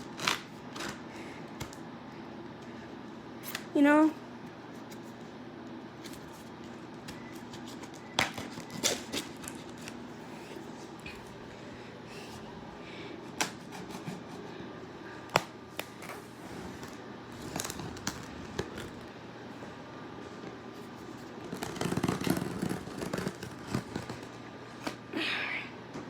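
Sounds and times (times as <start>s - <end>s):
packaging scraping and rustling: 6.0s - 10.0s, 16.8s - 19.1s, 21.0s - 24.4s.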